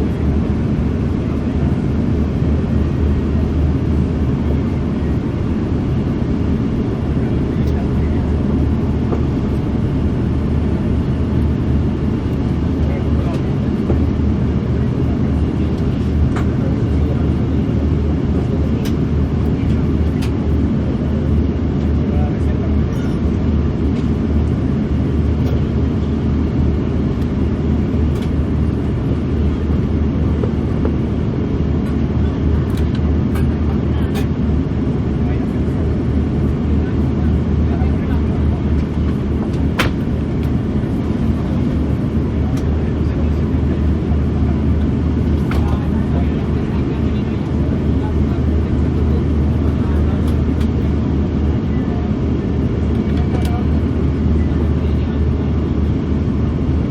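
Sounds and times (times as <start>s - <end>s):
airliner cabin rumble: 0.0s - 56.9s.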